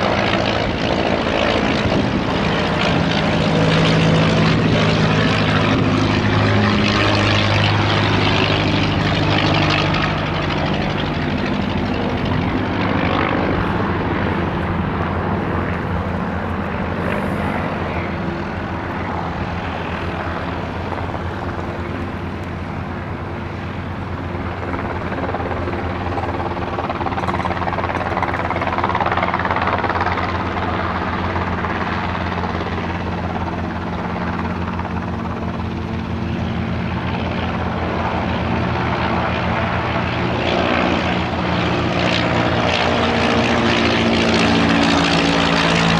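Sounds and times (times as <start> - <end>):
aircraft engine running: 0.0 - 45.9.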